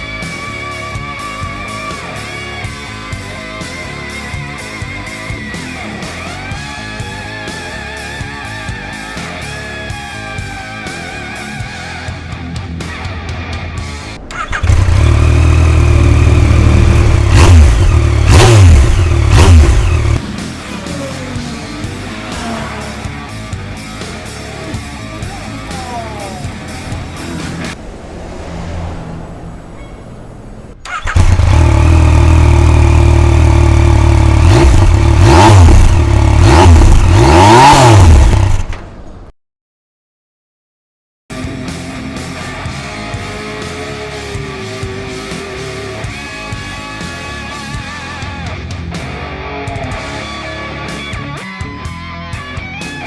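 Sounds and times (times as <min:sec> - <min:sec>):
motorcycle engine starting: 0:13.8 - 0:39.3
motorcycle engine revving: 0:13.9 - 0:39.0
motorcycle engine idling: 0:14.2 - 0:28.4, 0:29.2 - 0:37.4.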